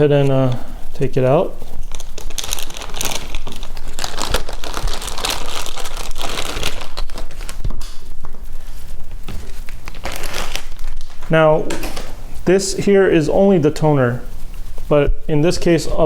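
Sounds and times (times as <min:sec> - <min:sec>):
packaging bag crinkling: 0:01.8 - 0:08.0, 0:09.3 - 0:12.1.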